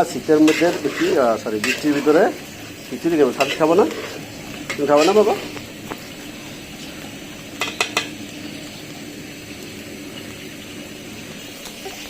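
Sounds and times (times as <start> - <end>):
food hissing in pot: 0.0 - 12.0
spoon clinking against pot: 7.6 - 8.2.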